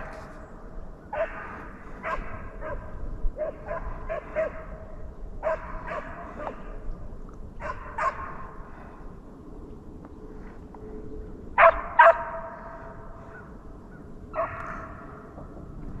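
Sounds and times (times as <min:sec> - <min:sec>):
hound baying: 0:01.1 - 0:04.7, 0:05.4 - 0:06.6, 0:11.6 - 0:12.6, 0:14.3 - 0:15.0.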